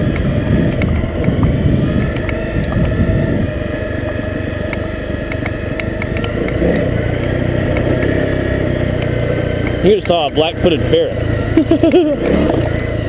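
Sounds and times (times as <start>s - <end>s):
wind noise on microphone: 0.0s - 3.8s
motorcycle engine running: 0.0s - 13.0s.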